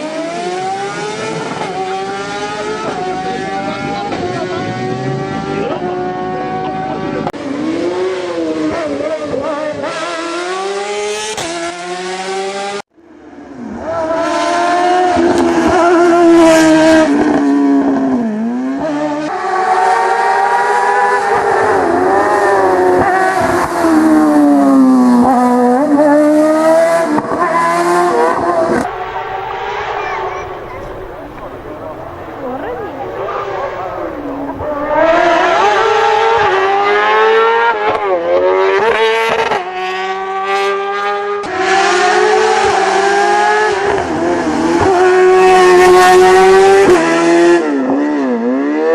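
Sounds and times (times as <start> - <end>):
race car engine revving: 0.0 - 12.8, 13.6 - 48.9.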